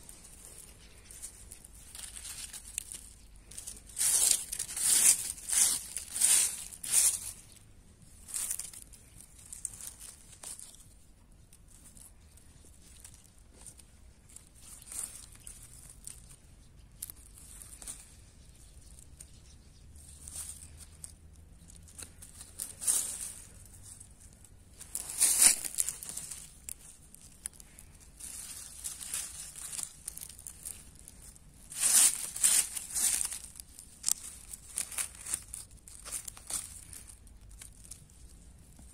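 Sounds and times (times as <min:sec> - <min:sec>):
leaves and stems tearing: 0:00.0 - 0:07.6, 0:20.1 - 0:38.9.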